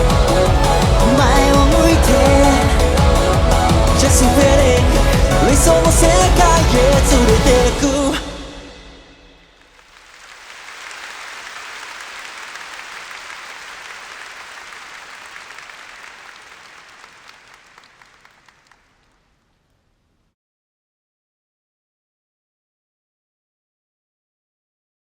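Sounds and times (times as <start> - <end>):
crowd applauding and cheering: 0.0 - 7.9, 9.7 - 19.1.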